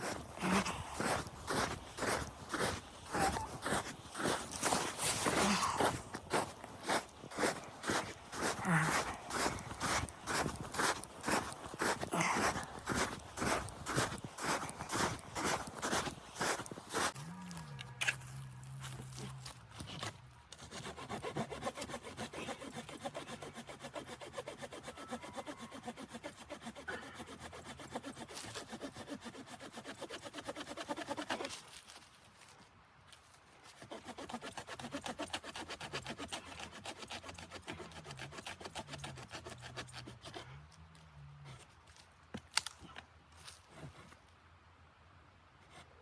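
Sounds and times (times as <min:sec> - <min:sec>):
hand saw cutting wood: 0:00.0 - 0:17.2, 0:19.4 - 0:31.6, 0:33.7 - 0:40.7.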